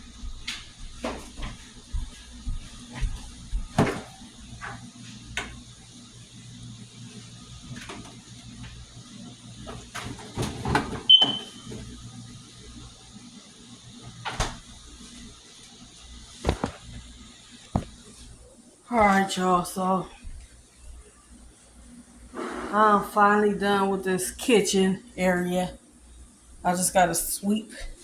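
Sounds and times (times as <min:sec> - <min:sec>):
knocks and clicks of kitchen items: 0:02.9 - 0:04.8, 0:09.7 - 0:11.8, 0:16.4 - 0:17.0, 0:17.7 - 0:18.0.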